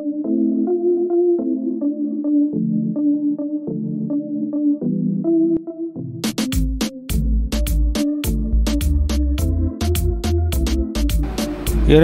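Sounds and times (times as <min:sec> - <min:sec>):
electric piano chords: 0:11.1 - 0:12.0.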